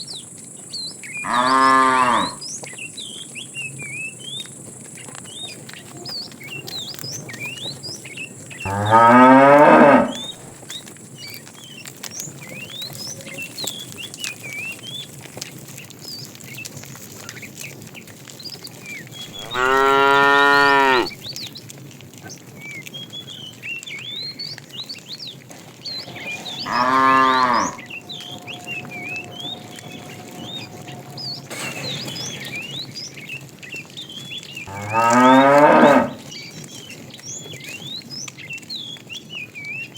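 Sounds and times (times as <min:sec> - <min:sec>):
cattle mooing: 0:01.2 - 0:02.4, 0:08.7 - 0:10.5, 0:19.3 - 0:21.1, 0:25.9 - 0:32.6, 0:34.7 - 0:36.3.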